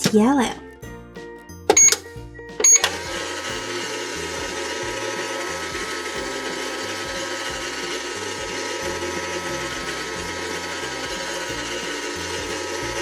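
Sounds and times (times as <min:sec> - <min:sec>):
toy microwave motor whirring: 0:02.6 - 0:13.0.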